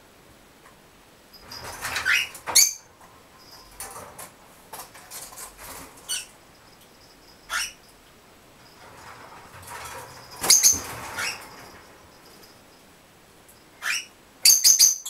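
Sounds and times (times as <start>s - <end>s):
birds chirping: 1.3s - 4.3s, 4.9s - 15.0s
wings fluttering: 1.4s - 6.6s, 8.6s - 12.8s.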